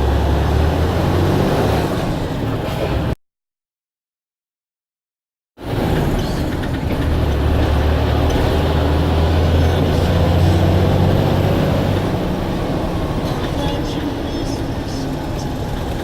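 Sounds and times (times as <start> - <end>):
bus engine droning: 0.0 - 3.2, 5.6 - 16.0.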